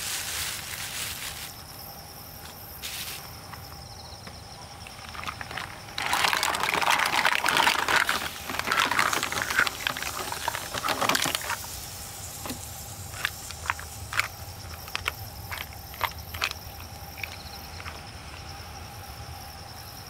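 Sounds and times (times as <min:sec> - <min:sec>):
insects chirring: 0:00.0 - 0:20.0
water pouring and splashing: 0:04.9 - 0:18.0.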